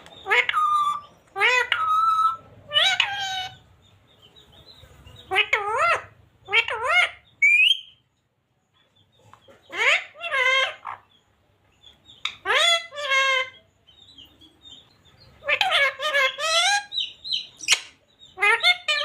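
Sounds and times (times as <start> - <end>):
parrot high chirps: 0.2 - 3.6, 5.3 - 8.0, 9.7 - 11.2, 12.2 - 13.6, 14.8 - 19.0
parrot talking: 0.2 - 3.6, 5.3 - 7.9, 9.7 - 11.1, 12.2 - 13.6, 15.4 - 19.0.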